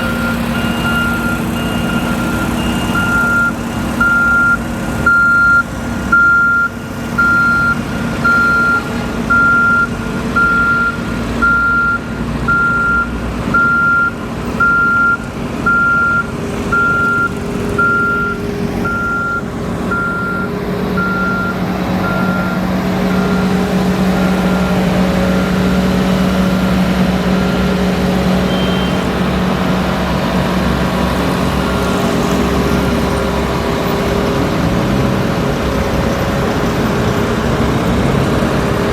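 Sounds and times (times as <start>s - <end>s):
reversing alarm beeping: 0.0s - 29.3s
engine drone: 0.0s - 38.9s.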